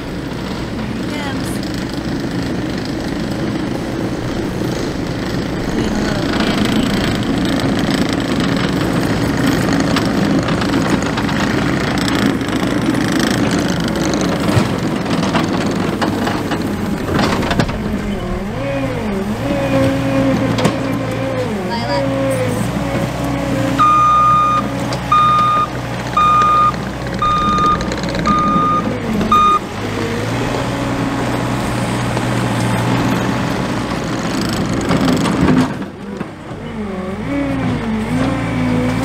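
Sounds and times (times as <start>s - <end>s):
diesel engine drone: 0.0s - 39.0s.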